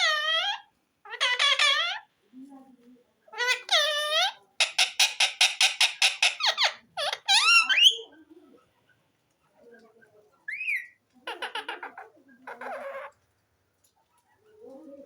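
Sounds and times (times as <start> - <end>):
parrot chattering and whistling: 0.0 - 2.1, 3.4 - 8.1, 10.5 - 13.1.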